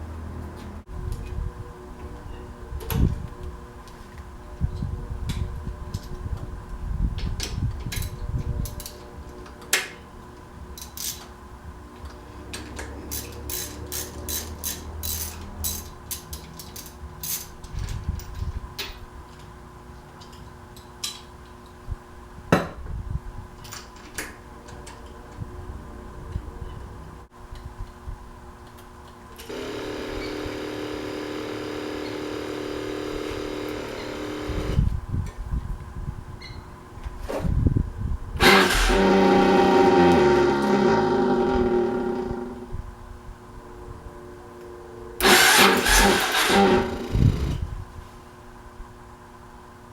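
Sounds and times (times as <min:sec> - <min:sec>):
metallic clicks and clinks: 0:12.6 - 0:18.4
steady hum: 0:29.3 - 0:36.2
motorcycle steady pitched howl: 0:29.4 - 0:35.1, 0:37.9 - 0:47.9
low engine rumble: 0:37.6 - 0:48.0.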